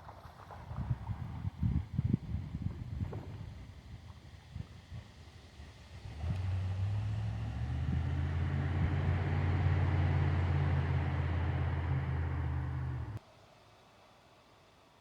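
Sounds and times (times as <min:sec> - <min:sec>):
low engine hum: 0:03.0 - 0:13.2.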